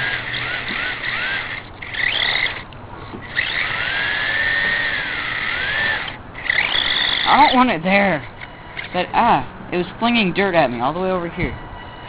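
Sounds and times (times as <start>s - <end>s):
wheels spinning in mud: 0.0s - 2.6s, 3.2s - 7.5s
small electric motor whining: 0.0s - 9.1s.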